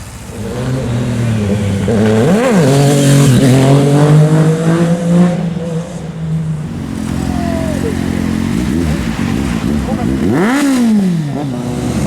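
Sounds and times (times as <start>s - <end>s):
motorcycle engine accelerating: 0.3s - 12.0s.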